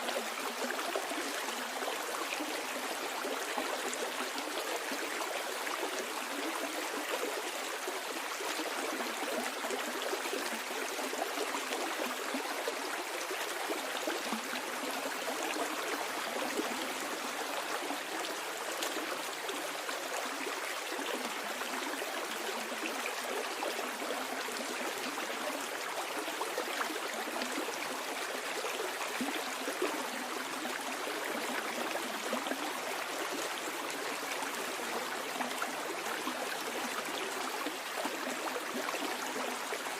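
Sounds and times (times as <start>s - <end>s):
stream water babbling over stones: 0.0s - 39.9s.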